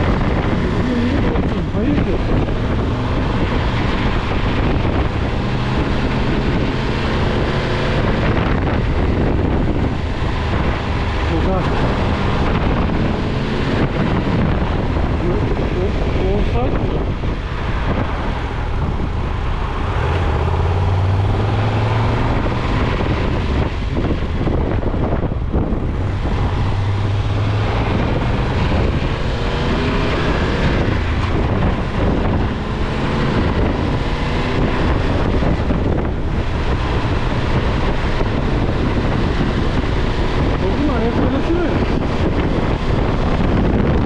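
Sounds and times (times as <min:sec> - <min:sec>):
road traffic: 0:00.0 - 0:44.0
vehicles passing rumble: 0:00.0 - 0:44.0
wind on microphone: 0:00.0 - 0:44.0.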